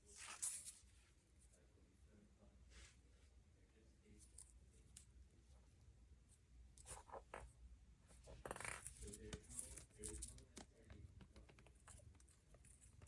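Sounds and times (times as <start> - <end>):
soft rustle: 0.0 - 1.7, 2.7 - 3.4
faint clicks and scratches: 6.3 - 13.0.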